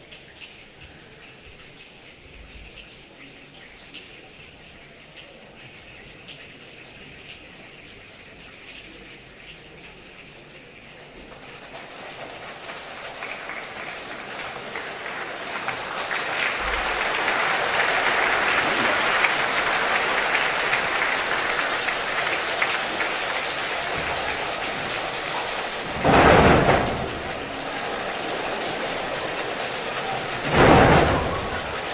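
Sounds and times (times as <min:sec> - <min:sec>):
hands making rain patter: 0:00.0 - 0:31.9
thunder-like crash: 0:17.9 - 0:31.9.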